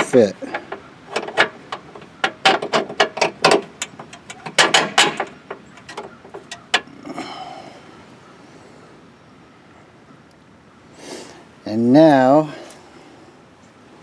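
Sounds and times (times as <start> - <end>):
sharp metal clicks and knocks: 0.0 - 6.9.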